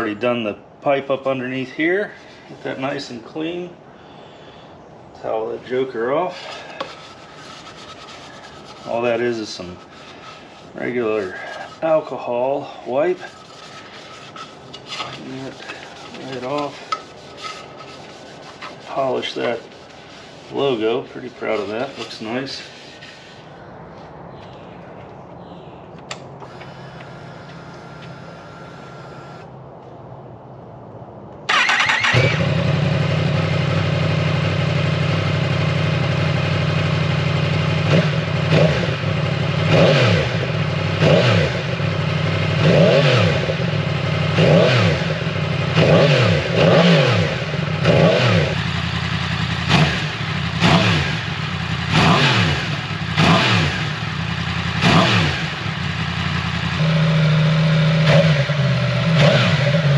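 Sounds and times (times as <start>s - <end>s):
faint steady whine: 22.7s - 29.9s
motorcycle engine starting and revving: 26.1s - 29.5s, 31.5s - 59.9s.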